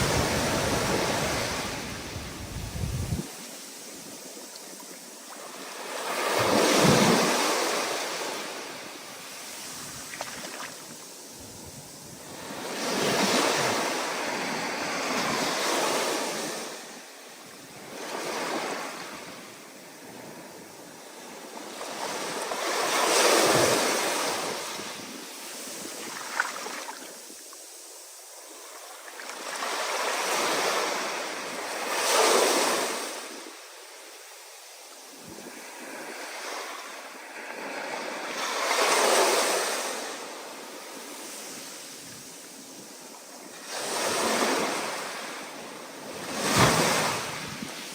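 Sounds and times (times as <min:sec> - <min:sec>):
ocean waves breaking: 0:00.0 - 0:03.6.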